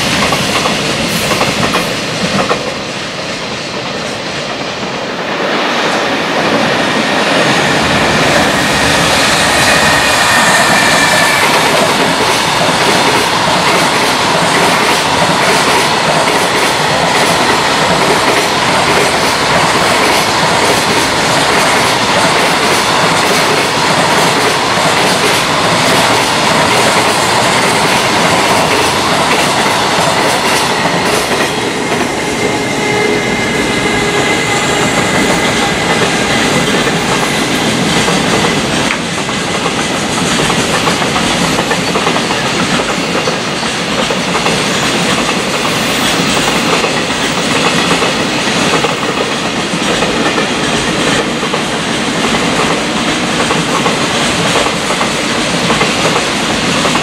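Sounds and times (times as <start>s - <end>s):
train wheels clattering over joints: 34.8s - 57.0s.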